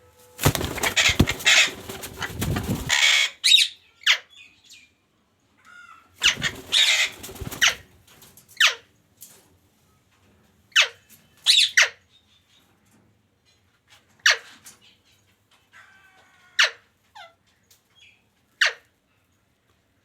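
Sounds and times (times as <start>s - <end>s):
parrot flapping wings: 0.4s - 3.1s, 6.2s - 7.9s
parrot sharp calls: 0.4s - 3.3s.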